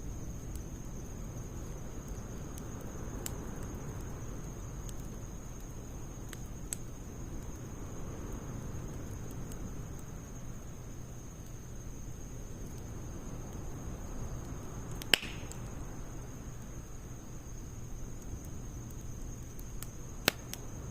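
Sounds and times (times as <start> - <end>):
fire crackling and popping: 0.0 - 20.9
wood fire rushing: 12.4 - 17.0.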